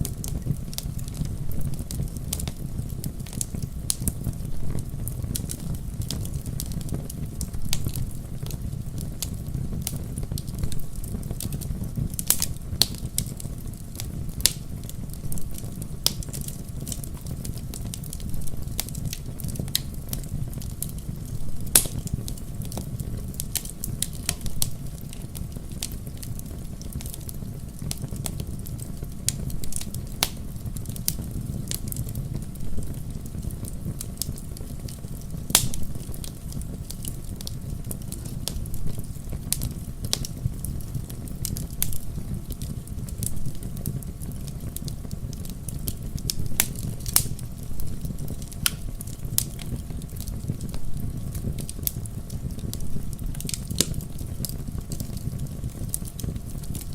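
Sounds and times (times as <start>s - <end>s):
fire crackles and pops: 0.0s - 56.9s
fire flames rumbling: 0.0s - 56.9s.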